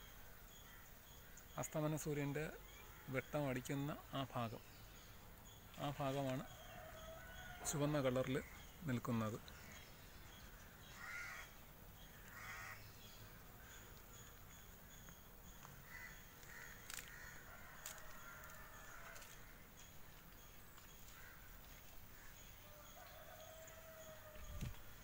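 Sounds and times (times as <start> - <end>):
distant bird calls: 0.0 - 25.0.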